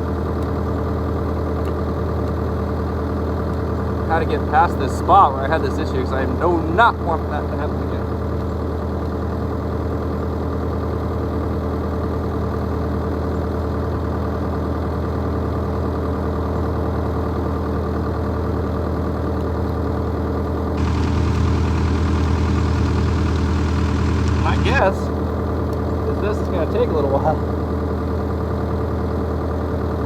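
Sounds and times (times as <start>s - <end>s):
excavator diesel engine idling: 20.8s - 25.0s.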